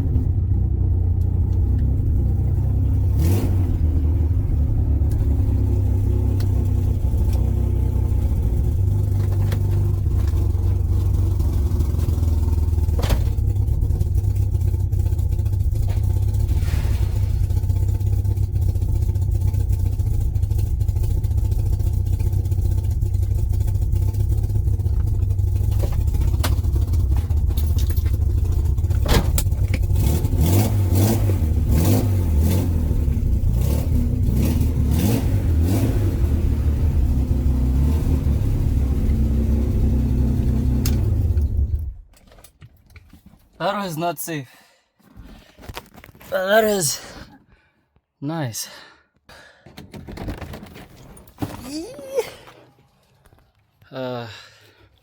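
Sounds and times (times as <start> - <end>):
car engine droning: 0.0 - 42.0.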